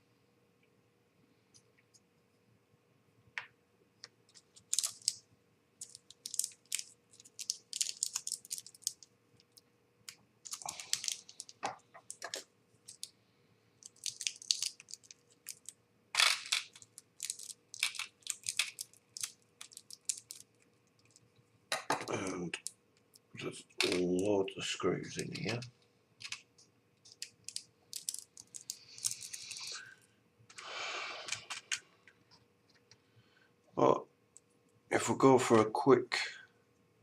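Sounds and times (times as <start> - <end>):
small plastic parts clicking: 4.3 - 5.2, 5.8 - 13.1, 13.8 - 24.2, 25.2 - 29.7, 31.2 - 33.0.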